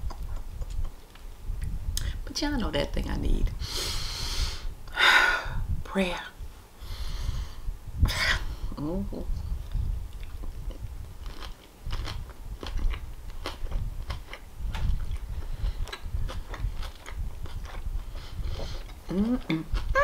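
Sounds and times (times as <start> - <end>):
lettuce crunching: 10.1 - 17.9.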